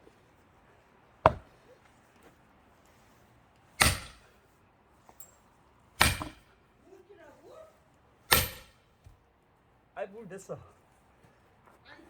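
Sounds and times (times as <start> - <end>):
sledgehammer striking axes: 1.2 - 1.6, 3.8 - 4.4, 6.0 - 6.6, 8.3 - 9.2.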